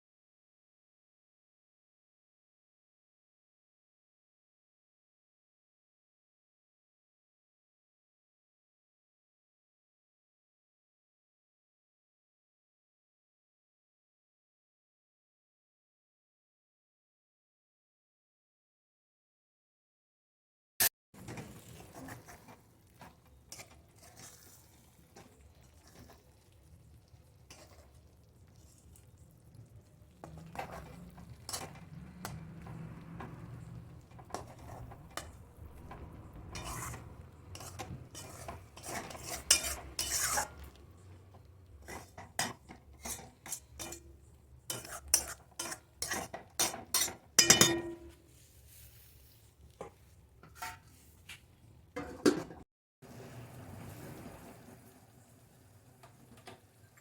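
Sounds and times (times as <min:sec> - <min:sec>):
metal spoon scraping cooking pot: 0:21.2 - 0:26.2, 0:30.2 - 0:40.8, 0:41.8 - 0:48.3, 0:49.8 - 0:51.0.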